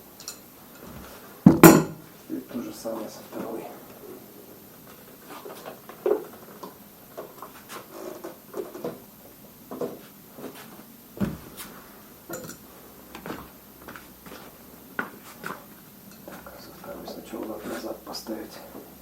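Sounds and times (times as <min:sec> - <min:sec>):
heavy thump: 0:01.5 - 0:02.0.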